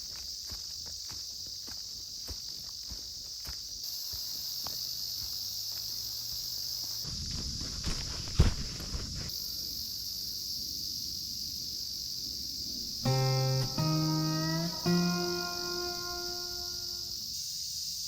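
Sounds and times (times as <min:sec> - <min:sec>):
footsteps on forest floor: 0:00.0 - 0:09.3
insects chirring: 0:00.0 - 0:18.0.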